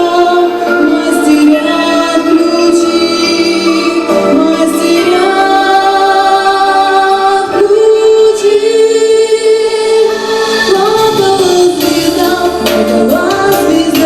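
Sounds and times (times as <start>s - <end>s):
musical accompaniment: 0.0s - 14.0s
woman singing long notes: 0.0s - 14.0s.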